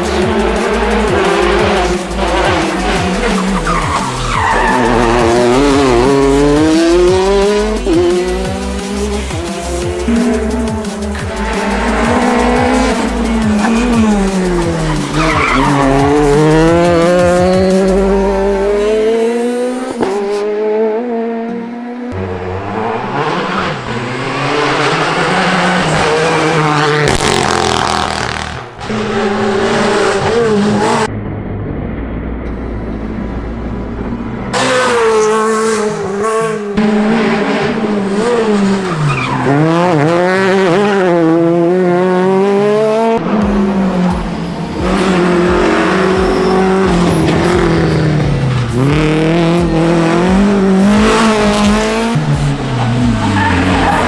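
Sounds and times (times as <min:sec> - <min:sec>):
rally car engines revving: 0:00.0 - 0:54.0
tyres squealing: 0:00.8 - 0:06.0, 0:11.4 - 0:18.0, 0:52.4 - 0:54.0.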